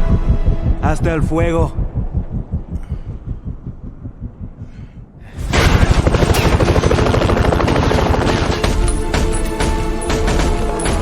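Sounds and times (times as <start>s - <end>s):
low fast pulsing throb: 0.0s - 10.5s
rapid automatic gunfire: 5.4s - 9.3s.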